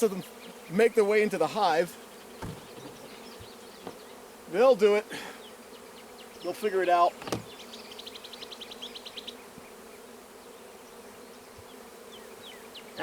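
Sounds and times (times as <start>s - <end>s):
bees buzzing: 0.0s - 13.0s
sharp knock: 2.4s - 2.9s.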